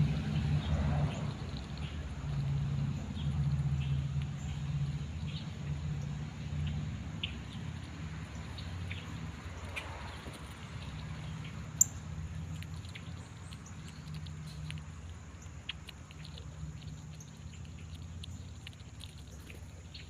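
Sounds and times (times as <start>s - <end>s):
small rodent clicking and tapping: 6.6s - 20.0s.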